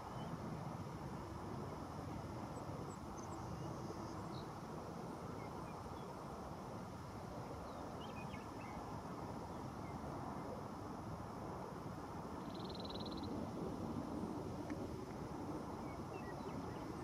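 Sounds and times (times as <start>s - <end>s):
faint bird chirps: 12.4s - 13.3s.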